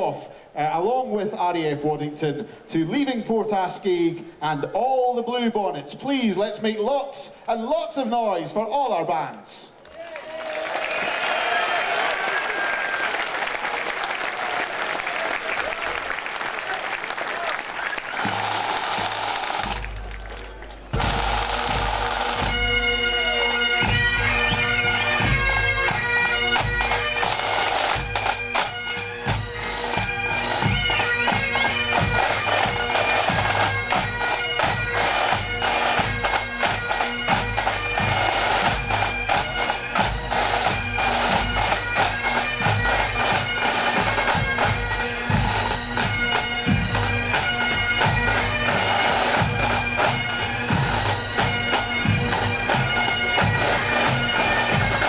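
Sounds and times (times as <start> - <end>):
drums beating: 16.9 - 55.0
bagpipe drones humming: 17.8 - 55.0
bagpipe chanters playing tune: 20.9 - 55.0.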